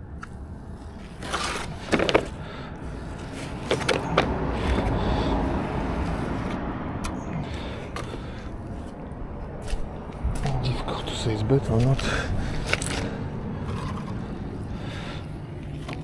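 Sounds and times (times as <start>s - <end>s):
trowel scraping concrete: 0.9s - 2.4s, 12.6s - 14.2s.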